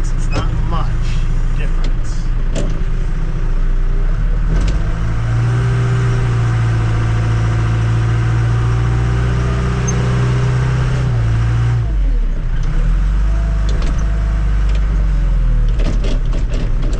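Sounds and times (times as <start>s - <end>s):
backhoe engine revving: 4.0s - 16.9s.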